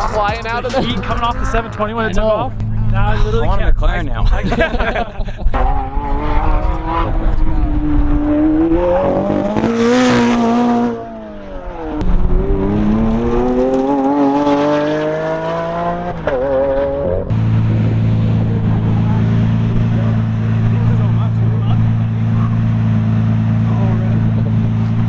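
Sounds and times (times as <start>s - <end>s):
supercar engine accelerating: 5.5s - 25.0s
engine idling low: 17.3s - 25.0s.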